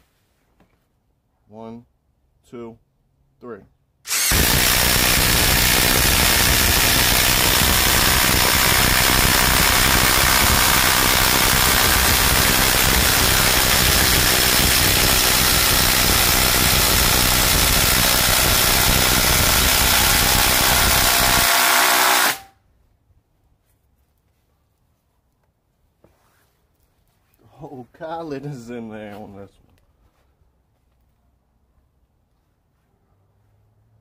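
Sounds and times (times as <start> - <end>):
impact drivers boring into wood: 4.1 - 22.5.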